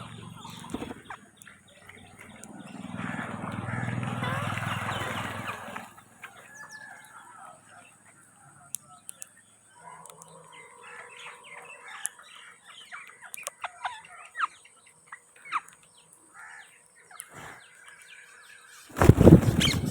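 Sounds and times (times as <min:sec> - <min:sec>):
parakeets squawking and chirping: 0:00.0 - 0:06.7, 0:19.0 - 0:19.9.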